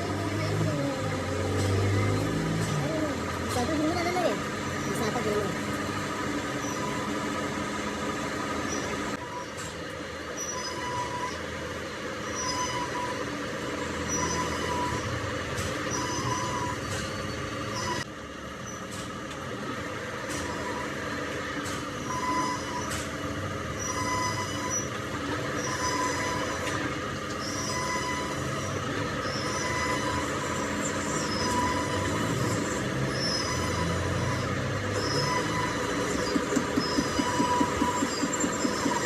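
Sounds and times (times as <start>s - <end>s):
squealing tone: 6.5s - 7.2s, 10.4s - 11.5s, 12.2s - 13.3s, 23.8s - 25.0s, 27.4s - 39.0s
metal-cutting machine running: 24.4s - 39.0s.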